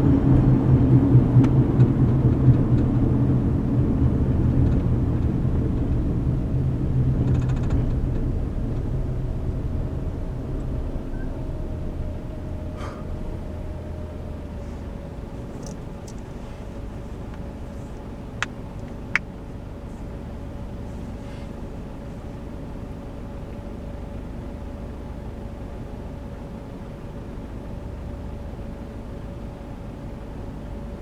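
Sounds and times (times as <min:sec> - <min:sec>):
engine and road rumble: 0:00.0 - 0:31.0
faint steady hum: 0:08.1 - 0:31.0.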